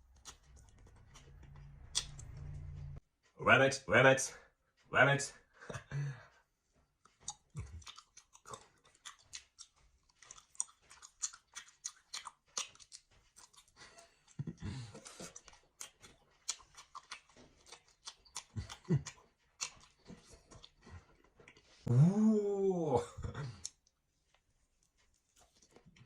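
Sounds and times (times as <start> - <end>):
chewing and crunching food: 0.0 - 3.0, 5.6 - 21.9, 23.2 - 26.0
short low hum: 1.4 - 3.0.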